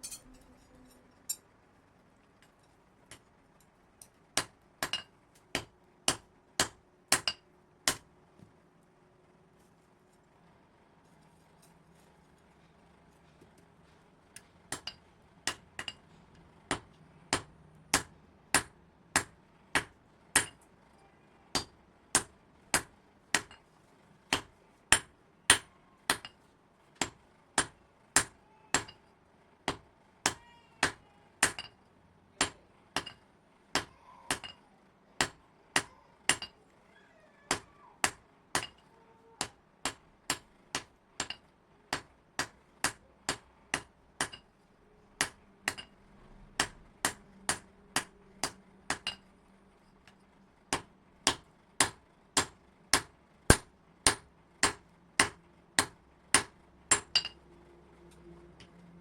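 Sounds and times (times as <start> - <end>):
hammer striking metal: 0.0 - 1.4, 14.7 - 16.0, 16.7 - 20.6, 27.0 - 29.1, 29.7 - 31.8, 32.4 - 33.2, 33.8 - 34.6, 35.2 - 36.6, 37.5 - 38.8, 39.4 - 44.5, 45.2 - 46.0, 46.6 - 49.3, 50.1 - 57.4.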